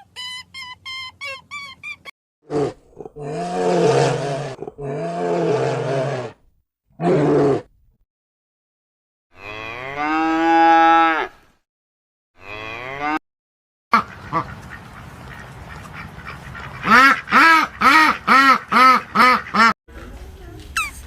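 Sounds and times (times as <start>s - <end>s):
cow mooing: 9.4s - 11.4s, 12.4s - 13.2s
duck quacking: 13.9s - 19.7s.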